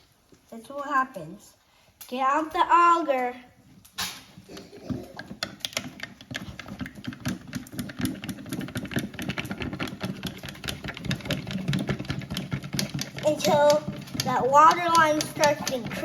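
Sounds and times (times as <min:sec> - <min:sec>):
rapid mechanical clattering: 0:05.7 - 0:16.0.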